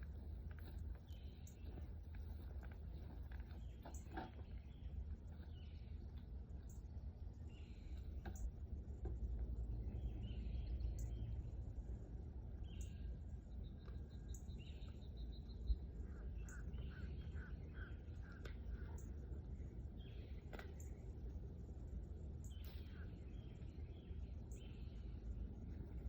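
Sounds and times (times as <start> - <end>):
steady low rumble: 0.0 - 26.0
birds chirping: 12.6 - 21.1.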